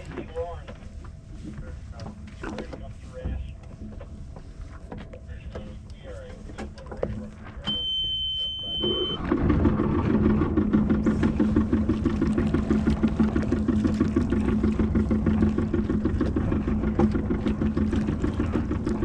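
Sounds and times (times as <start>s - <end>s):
high steady beep: 7.6s - 9.2s
diesel engine idling: 9.2s - 19.0s.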